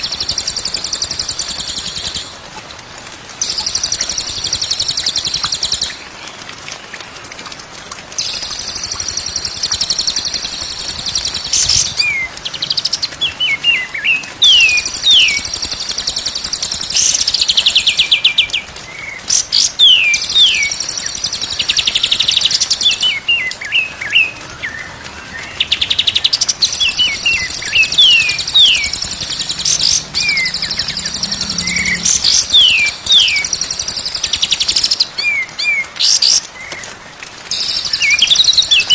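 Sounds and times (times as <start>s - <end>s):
songbirds buzzy chatter: 14.4s - 35.0s.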